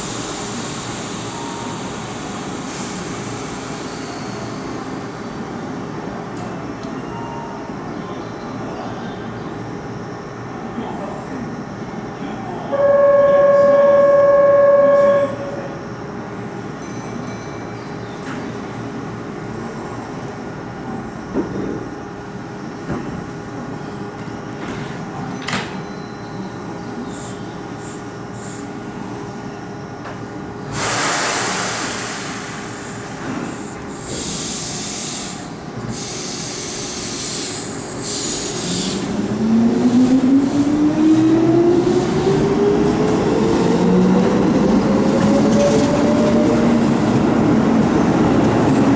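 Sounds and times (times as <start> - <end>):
train traction motor whine: 12.6 - 16.7
compressed air hiss: 30.7 - 33.3.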